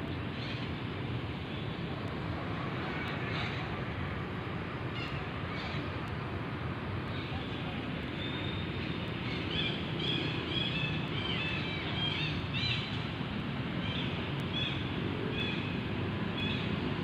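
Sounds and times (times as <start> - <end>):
steady outdoor hiss: 0.0 - 17.0
birds chirping: 7.0 - 16.9.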